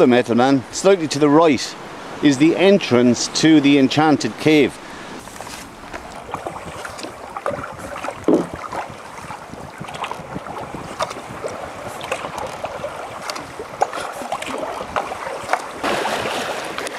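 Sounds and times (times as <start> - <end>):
kayak paddle splashing: 3.4 - 16.9.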